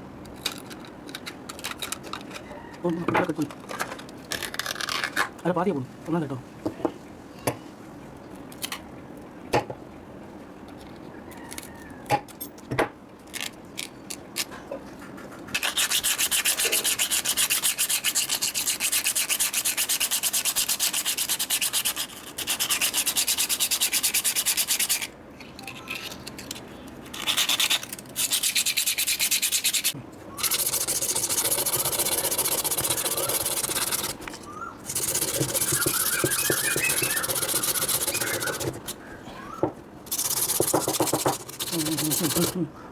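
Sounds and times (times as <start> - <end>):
sanding metal: 15.6 - 25.1, 27.2 - 34.2, 34.8 - 39.0, 40.1 - 42.6.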